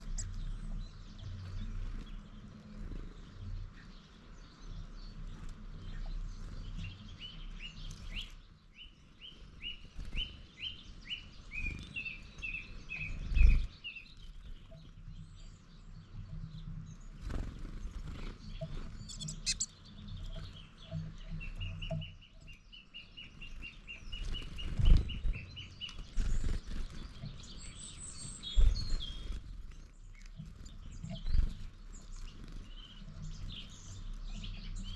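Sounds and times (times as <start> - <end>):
small birds singing: 0.0 - 34.9
wind on microphone: 24.5 - 26.8.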